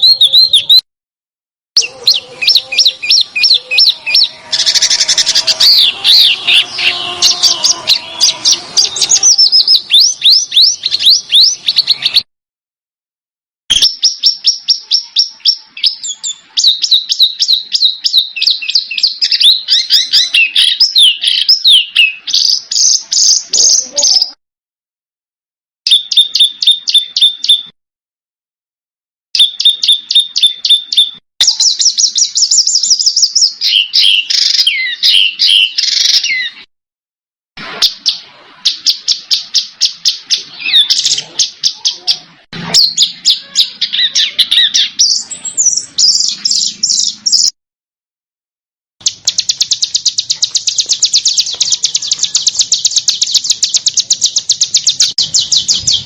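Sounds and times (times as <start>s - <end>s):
scratchy bird warbling: 0.0s - 0.8s, 1.8s - 12.2s, 37.6s - 47.5s, 49.0s - 56.0s
songbird chirps: 0.0s - 0.8s, 1.8s - 12.3s, 13.7s - 24.4s, 25.9s - 27.7s, 29.4s - 36.7s, 37.8s - 47.5s, 49.0s - 56.0s.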